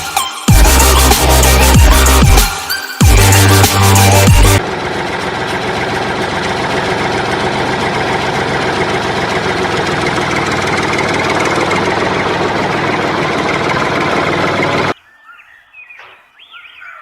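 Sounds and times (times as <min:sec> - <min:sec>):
motor buzzing steadily: 0:03.0 - 0:14.9.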